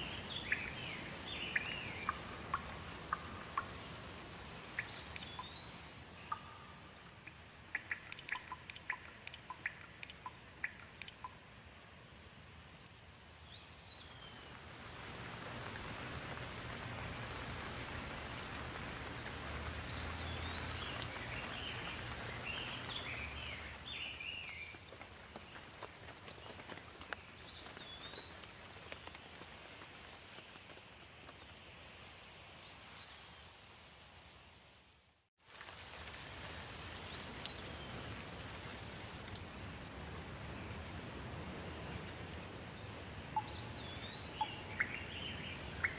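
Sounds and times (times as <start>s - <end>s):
bird chirps: 0.0s - 3.8s, 4.8s - 11.4s, 43.3s - 45.9s
steady rain: 0.0s - 45.9s.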